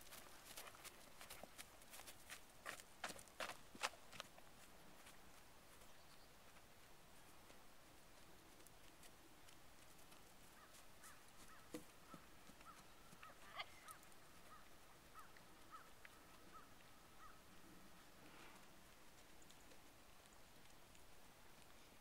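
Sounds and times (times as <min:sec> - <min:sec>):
faint bird calling: 0:10.6 - 0:17.4.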